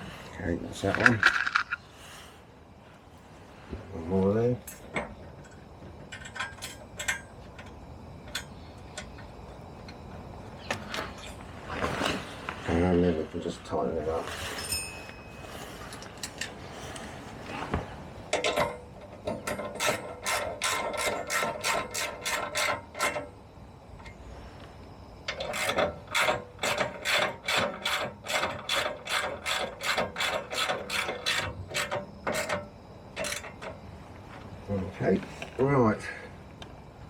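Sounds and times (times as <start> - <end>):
ratchet wrench clicking: 25.3 - 32.6.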